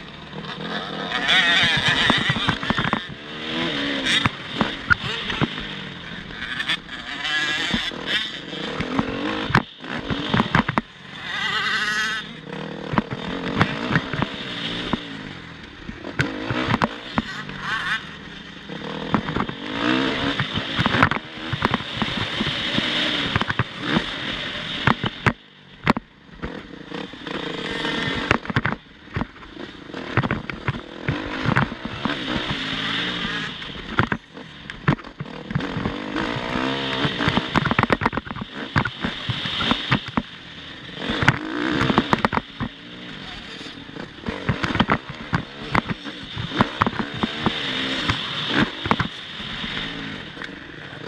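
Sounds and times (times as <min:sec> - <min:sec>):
dirt bike engines revving: 0:00.0 - 0:51.0
sharp knocks and clatters: 0:08.8 - 0:10.9, 0:15.9 - 0:17.8, 0:28.1 - 0:32.7, 0:33.9 - 0:40.3, 0:41.0 - 0:42.8, 0:44.2 - 0:49.2.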